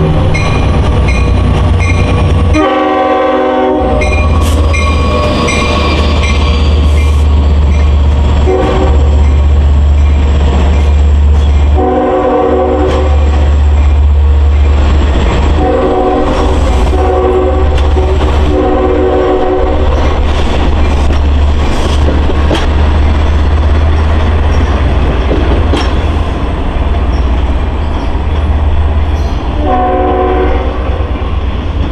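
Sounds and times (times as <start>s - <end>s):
train rumbling past: 0.0s - 31.9s
train air horn blasts: 2.5s - 6.0s, 8.5s - 9.1s, 11.8s - 13.4s, 15.6s - 19.9s, 29.6s - 31.2s.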